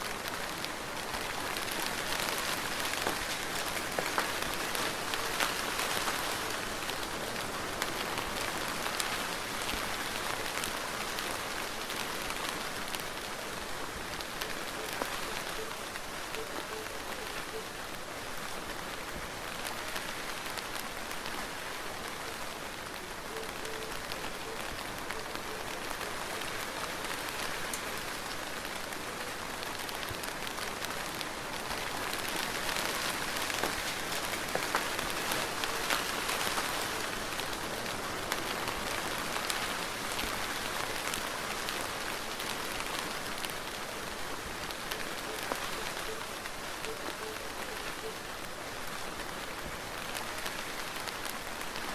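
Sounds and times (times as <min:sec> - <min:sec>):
soft steady rain: 0:00.0 - 0:51.9.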